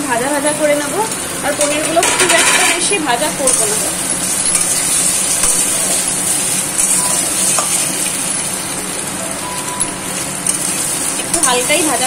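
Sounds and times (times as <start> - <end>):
cheese sizzling in oil: 0.0 - 12.0
metal spatula turning food: 1.6 - 8.7, 9.7 - 12.0.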